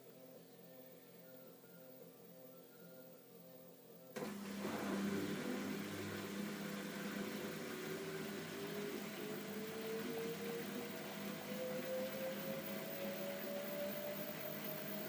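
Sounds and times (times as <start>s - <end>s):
motor whine rising in pitch: 4.2s - 15.0s
washer-dryer drum running: 4.2s - 15.0s.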